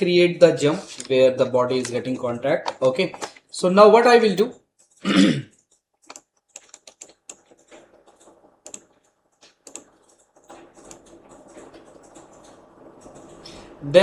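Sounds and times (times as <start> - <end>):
computer keyboard keys clicking: 4.4 - 13.7
faint steady hum: 6.7 - 14.0.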